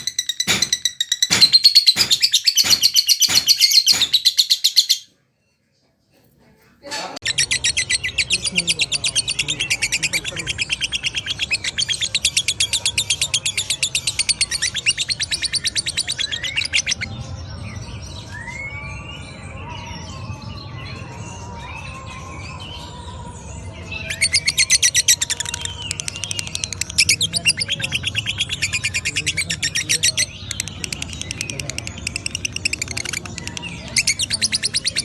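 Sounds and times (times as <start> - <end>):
lovebird rattling chatter: 0.0 - 5.0
lovebird chirps: 0.0 - 5.1.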